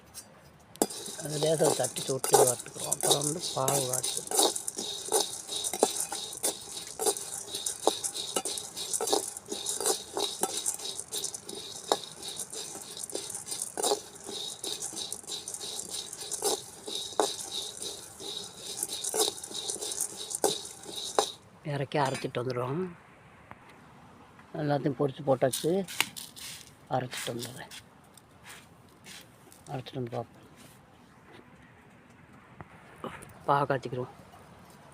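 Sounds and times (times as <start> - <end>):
metal spoon scraping a pan: 0.8 - 21.4.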